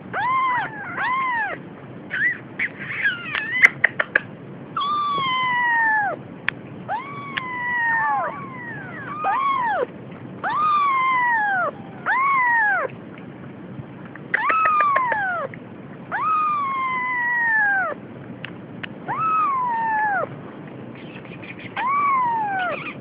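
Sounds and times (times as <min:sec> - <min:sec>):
cat meowing: 0:00.1 - 0:01.6, 0:04.8 - 0:06.2, 0:06.9 - 0:12.9, 0:14.4 - 0:15.5, 0:16.1 - 0:18.0, 0:19.1 - 0:20.3, 0:21.7 - 0:23.0.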